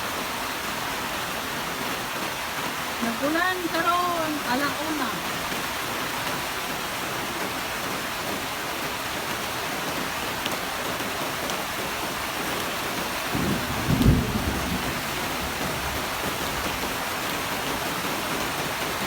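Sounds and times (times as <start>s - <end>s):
heavy rain falling: 0.0s - 19.0s
low rumble of thunder: 13.3s - 16.9s.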